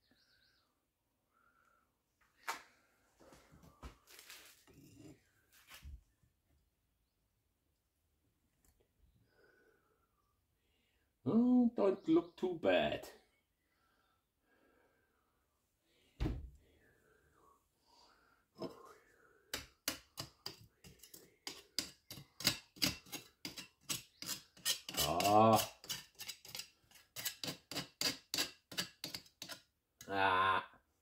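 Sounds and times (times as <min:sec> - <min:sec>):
short thump: 0:16.2 - 0:16.5.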